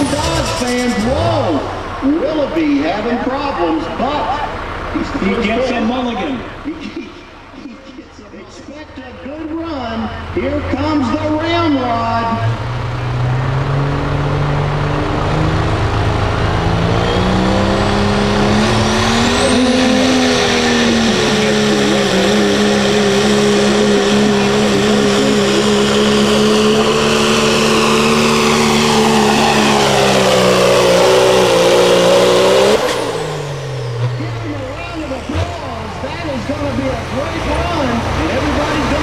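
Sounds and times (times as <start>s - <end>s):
diesel truck engine at full throttle: 0.0s - 39.0s.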